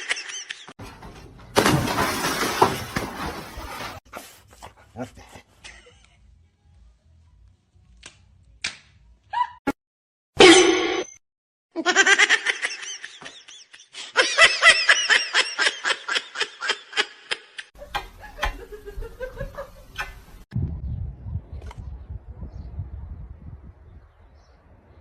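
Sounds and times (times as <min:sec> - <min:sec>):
lower quieter sound: 0:20.6 - 0:25.0.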